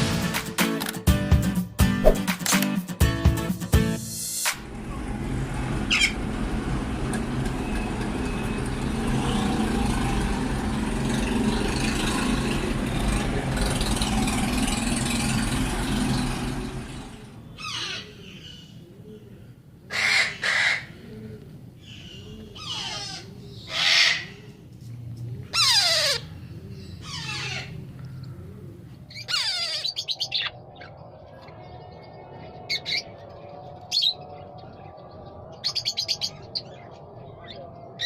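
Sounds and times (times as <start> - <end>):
parrots squawking: 19.9 - 21.0, 22.0 - 24.4, 25.5 - 27.8, 29.1 - 30.5.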